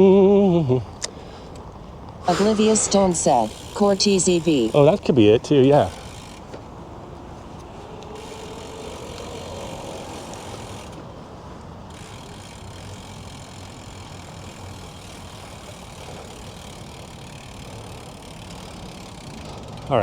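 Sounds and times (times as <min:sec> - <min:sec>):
motor vehicle idling: 0:00.0 - 0:20.0
faint rising tone: 0:06.8 - 0:11.2.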